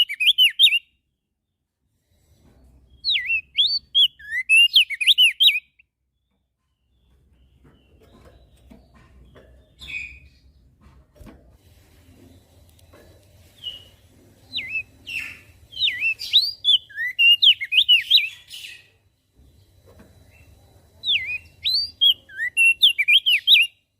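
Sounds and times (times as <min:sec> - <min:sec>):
bird chirping and whistling: 0:00.0 - 0:00.9, 0:03.0 - 0:05.8, 0:13.6 - 0:18.9, 0:21.0 - 0:23.8.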